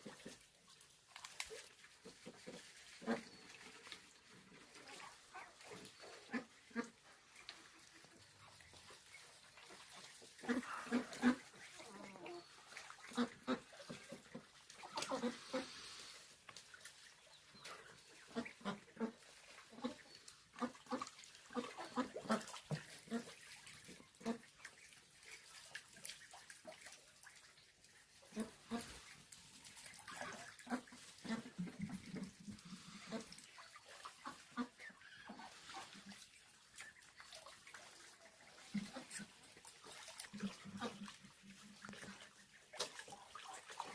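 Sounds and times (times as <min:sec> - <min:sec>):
farm animal calls: 0:10.3 - 0:16.2.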